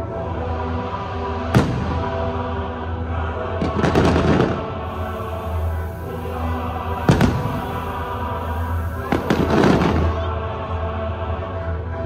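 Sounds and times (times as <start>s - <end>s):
choir and orchestra music: 0.0s - 12.0s
firework bursts: 3.6s - 10.3s.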